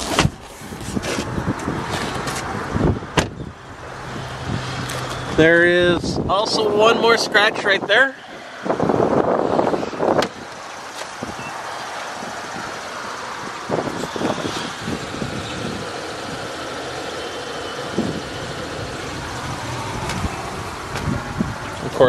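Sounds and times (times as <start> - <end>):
car engine idling: 8.1 - 22.0.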